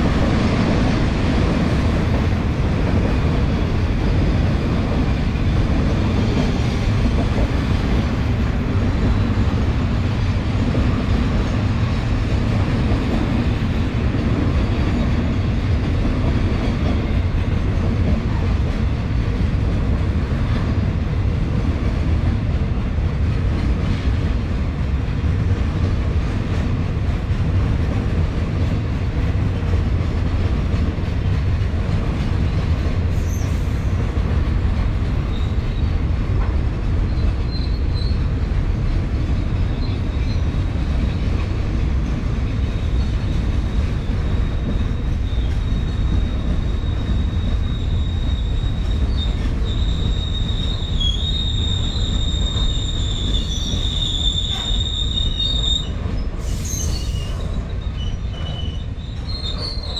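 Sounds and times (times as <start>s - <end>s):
freight train wagons rumbling: 0.0s - 59.9s
metal wheel squeal: 44.6s - 59.9s.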